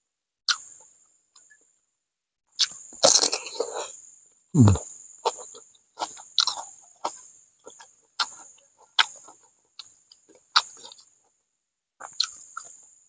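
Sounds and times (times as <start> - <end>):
man chewing with wet smacks: 4.7 - 11.1, 12.0 - 12.8.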